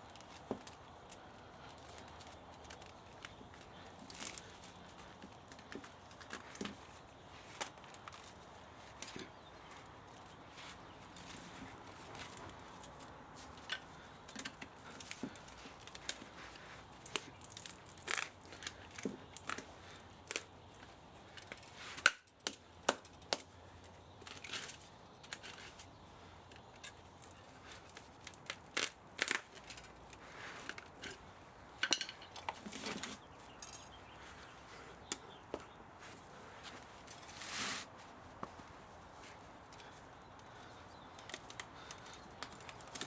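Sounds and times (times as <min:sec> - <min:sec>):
hand tools clicking and scraping metal: 0:11.0 - 0:23.5, 0:24.2 - 0:34.1.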